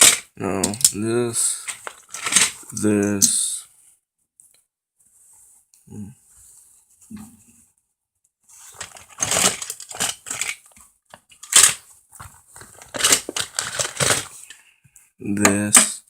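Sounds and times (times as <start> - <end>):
toys being handled: 0.0 - 3.4, 8.5 - 14.6
bag rustling and crinkling: 8.5 - 10.7, 11.4 - 14.6.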